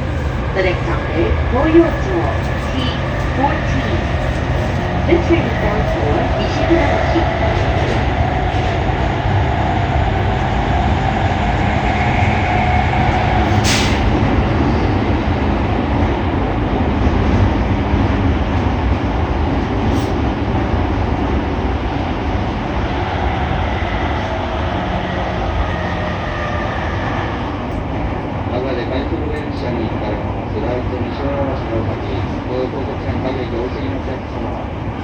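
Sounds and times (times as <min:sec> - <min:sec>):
train wheels rumbling on rail: 0:00.0 - 0:35.0
short high hisses: 0:13.6 - 0:14.1.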